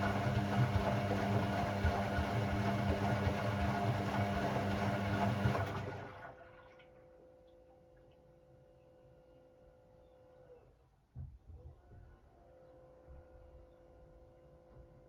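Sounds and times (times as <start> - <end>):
washing machine running: 0.0 - 6.8.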